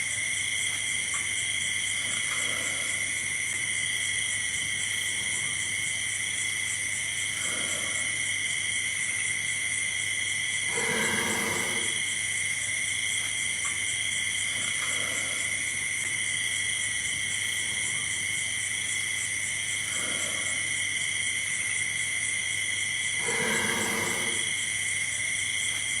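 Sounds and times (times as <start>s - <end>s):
crickets chirping: 0.0s - 26.0s
deep animal grunt: 2.0s - 3.3s, 7.3s - 8.3s, 10.6s - 12.1s, 14.4s - 16.0s, 19.8s - 20.9s, 23.2s - 24.6s.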